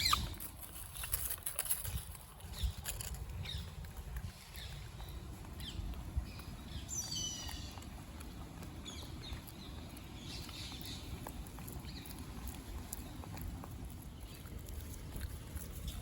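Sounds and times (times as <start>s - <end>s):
animal chirps and squeaks: 0.0s - 1.2s, 4.4s - 7.8s
steady low rumble: 1.9s - 16.0s.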